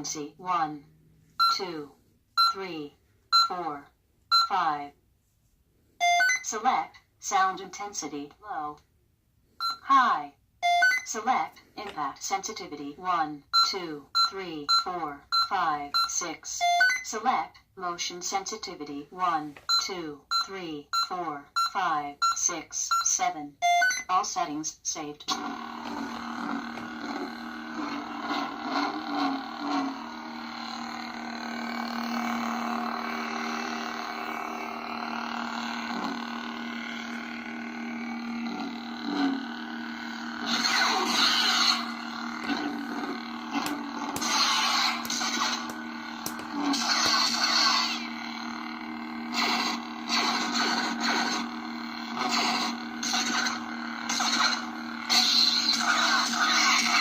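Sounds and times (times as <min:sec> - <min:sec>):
lightsaber electric hum: 0:24.2 - 0:57.0.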